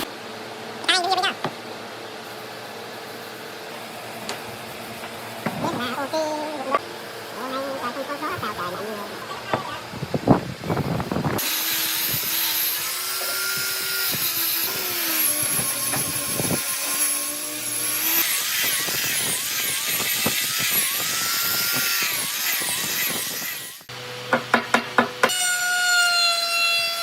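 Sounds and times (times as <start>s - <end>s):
power tool motor whining: 3.8s - 23.9s.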